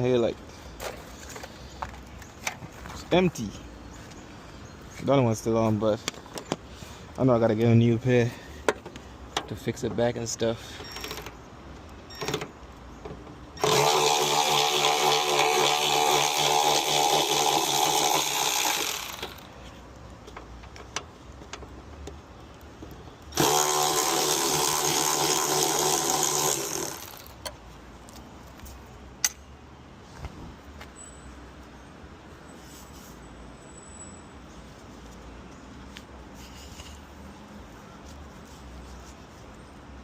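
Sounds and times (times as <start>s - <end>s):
power drill running: 13.6s - 19.5s, 23.3s - 27.3s.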